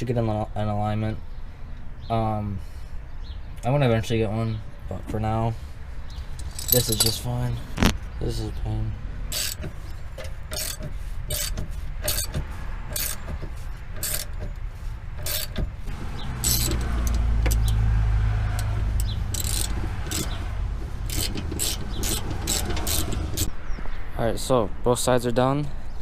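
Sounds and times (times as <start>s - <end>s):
ratchet wrench clicking: 6.4s - 7.2s, 9.3s - 13.4s, 14.0s - 14.5s, 15.2s - 15.7s, 16.3s - 17.8s, 18.5s - 20.4s, 21.0s - 23.5s.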